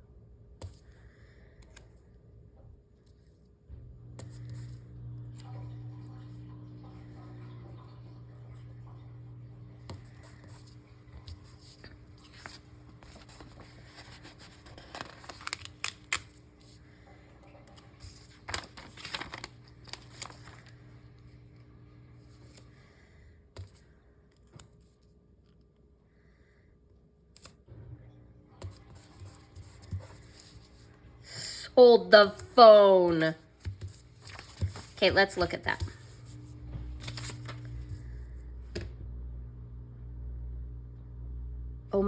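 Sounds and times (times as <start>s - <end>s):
low steady hum: 0.0s - 42.0s
paper stickers crackling: 10.0s - 16.8s, 17.5s - 21.3s, 32.2s - 38.0s.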